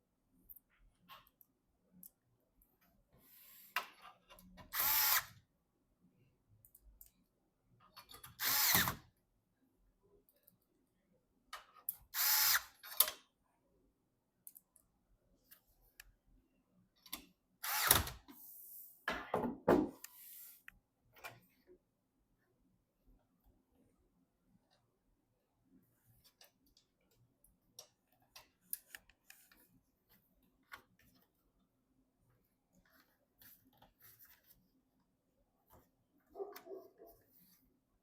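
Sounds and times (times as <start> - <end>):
power screwdriver whirring: 4.7 - 5.3, 8.4 - 9.0, 12.2 - 12.8, 17.6 - 18.1.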